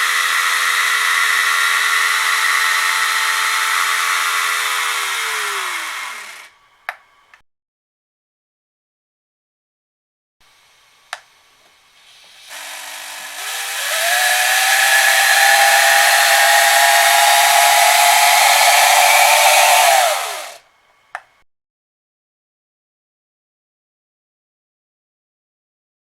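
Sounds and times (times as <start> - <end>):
model engine whine and hiss: 0.0 - 6.7, 10.5 - 20.6.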